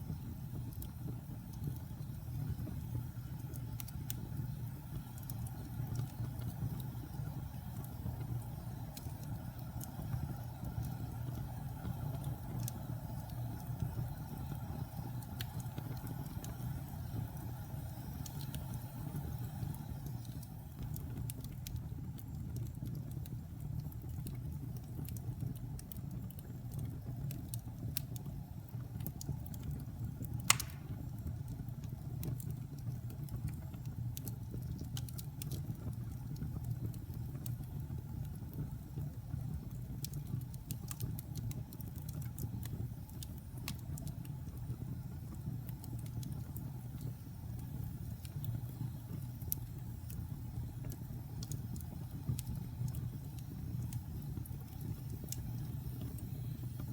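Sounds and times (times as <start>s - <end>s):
wood fire crackling: 0.0s - 56.9s
sharp pop of fire: 30.5s - 31.1s.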